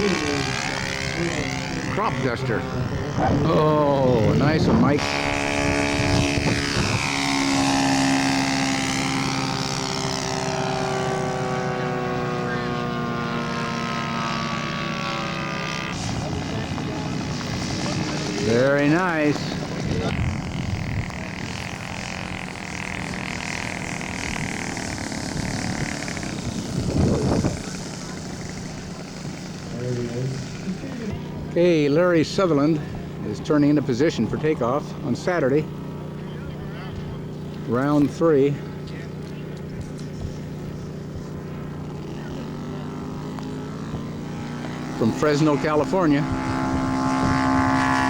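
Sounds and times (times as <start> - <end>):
wind buffeting microphone: 0.0 - 12.2, 15.9 - 31.6, 43.7 - 48.0
model airplane engine: 0.0 - 48.0.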